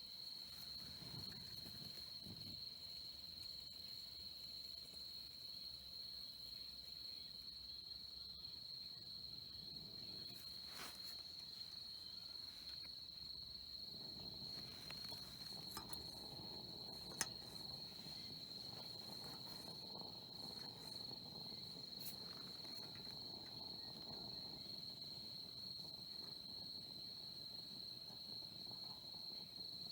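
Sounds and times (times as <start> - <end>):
crickets chirring: 0.0 - 29.9
faint clicks: 14.1 - 24.6.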